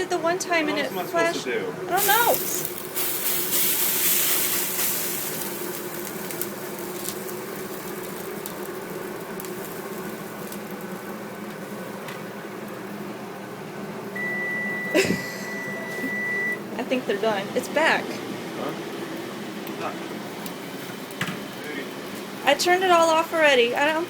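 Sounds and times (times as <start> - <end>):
kitchen appliance humming whir: 0.0 - 24.0
loud hiss: 1.9 - 8.0
long electronic beep: 14.2 - 16.6.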